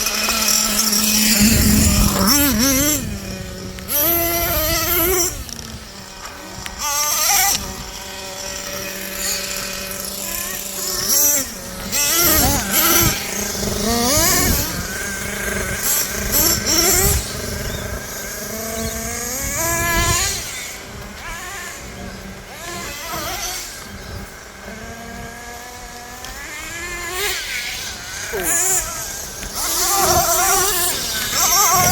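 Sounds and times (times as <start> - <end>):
rc truck engines revving: 0.0 - 31.9.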